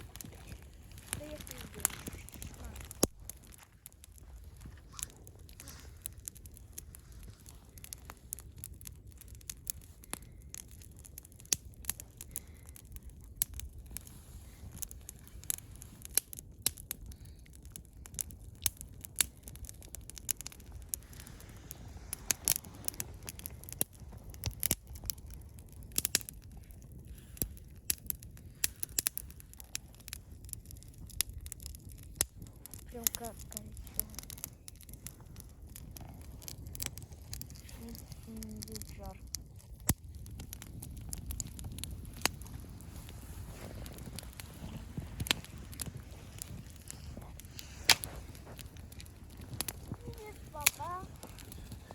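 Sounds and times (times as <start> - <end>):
campfire crackling: 0.0 - 51.9.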